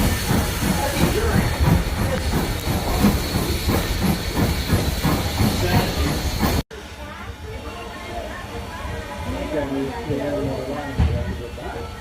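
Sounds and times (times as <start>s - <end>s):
steam train rhythmic pulsing: 0.0s - 6.9s
steam hissing: 0.0s - 7.1s.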